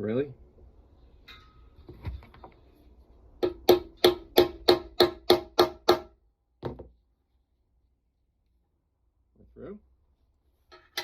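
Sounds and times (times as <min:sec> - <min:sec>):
hammer striking metal hole punch: 0:03.4 - 0:06.2.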